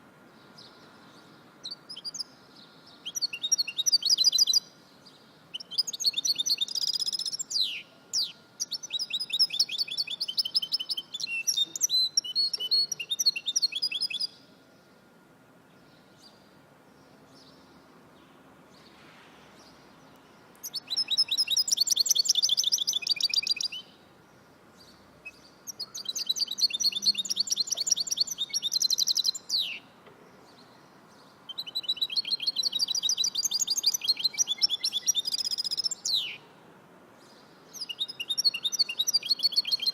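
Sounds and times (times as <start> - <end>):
songbird trilling: 3.0 - 4.7, 5.5 - 14.4, 20.6 - 23.9, 24.9 - 29.9, 31.5 - 36.4, 37.7 - 39.9.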